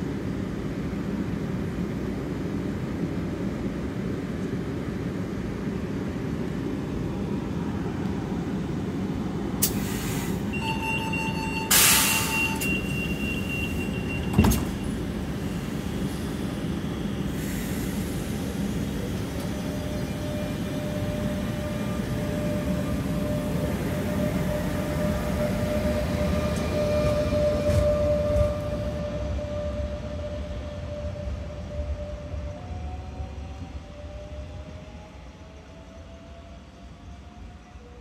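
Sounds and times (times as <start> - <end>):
train equipment humming: 0.1 - 32.8
hiss of air: 9.6 - 10.5, 17.2 - 18.8
door warning tone: 10.6 - 15.0
door shutting: 14.2 - 14.8.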